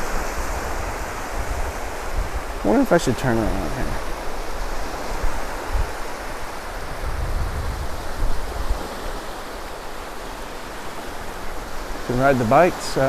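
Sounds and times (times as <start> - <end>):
ocean surf hissing: 0.0 - 13.0
wind rumbling on microphone: 0.0 - 13.0.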